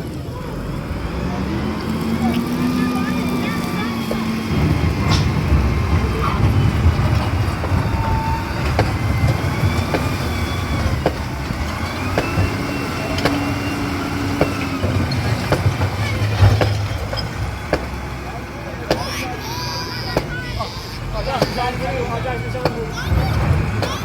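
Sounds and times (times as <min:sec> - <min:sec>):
heavy machinery engine rumbling: 0:00.0 - 0:24.0
sharp knocks: 0:04.0 - 0:18.0.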